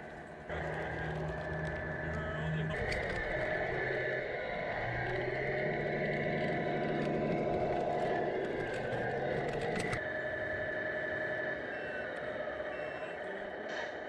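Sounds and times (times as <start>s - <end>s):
truck diesel engine running: 0.2s - 11.4s.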